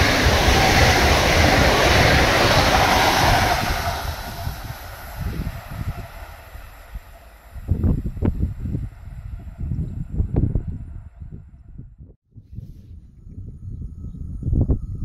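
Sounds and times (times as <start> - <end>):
train passing at speed: 0.0 - 11.9.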